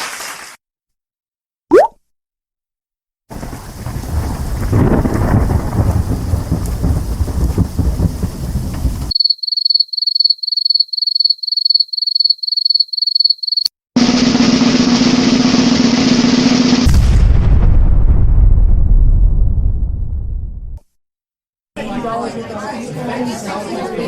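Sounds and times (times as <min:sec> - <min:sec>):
dense rumbling noise: 0:03.3 - 0:09.1, 0:16.8 - 0:20.8.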